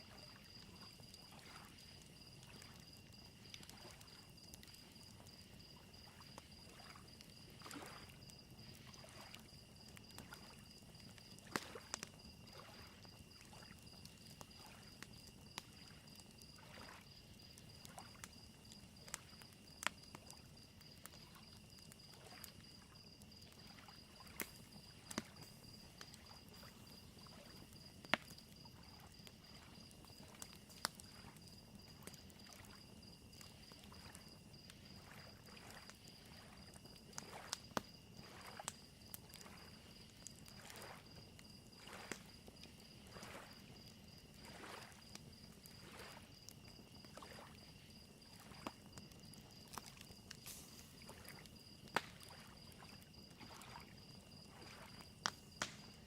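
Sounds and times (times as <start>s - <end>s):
campfire crackling and popping: 0.0s - 56.0s
crickets chirping: 0.0s - 56.0s
lake waves lapping on shore: 7.6s - 8.2s, 16.6s - 17.1s, 37.2s - 37.5s, 38.2s - 38.6s, 40.6s - 41.1s, 41.8s - 42.1s, 43.0s - 43.6s, 44.4s - 45.1s, 45.8s - 46.2s, 47.1s - 47.5s, 52.3s - 55.1s.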